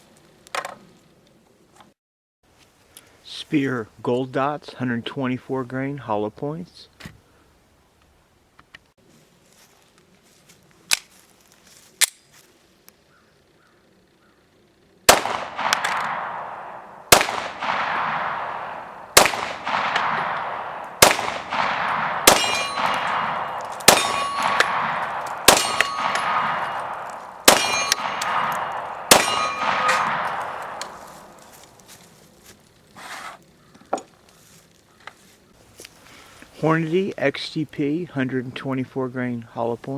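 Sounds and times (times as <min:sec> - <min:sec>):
gun handling clicks: 0:10.9 - 0:11.2, 0:12.0 - 0:12.3, 0:15.2 - 0:16.6, 0:19.2 - 0:31.8
pistol shots with echo: 0:15.1 - 0:31.4
steel target ringing: 0:15.6 - 0:31.4.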